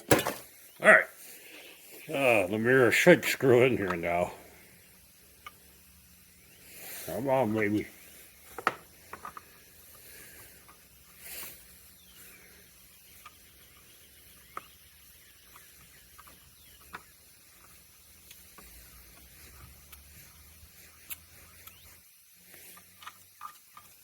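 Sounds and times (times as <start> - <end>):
small clicks and taps: 8.5 - 9.5, 15.4 - 20.1, 21.0 - 24.0.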